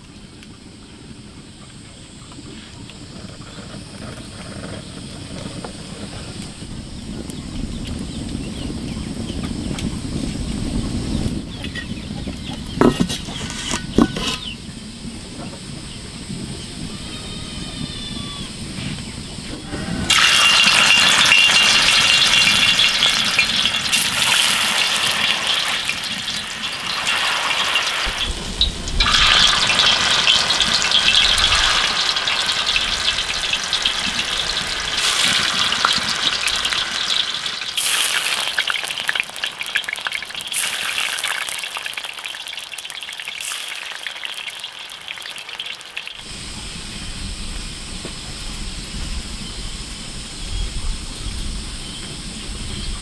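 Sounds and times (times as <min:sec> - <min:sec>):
tofu sizzling in hot oil: 0:20.1 - 0:46.3.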